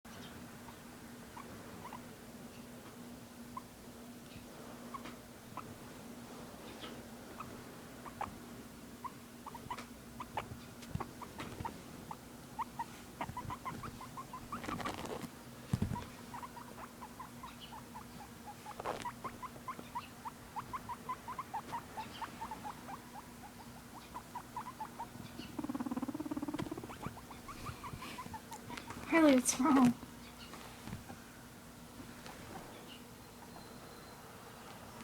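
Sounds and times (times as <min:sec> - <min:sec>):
guinea pig squeaking: 0:00.6 - 0:02.7, 0:04.8 - 0:05.9, 0:06.6 - 0:31.2, 0:32.9 - 0:34.2
rustle: 0:10.6 - 0:16.8.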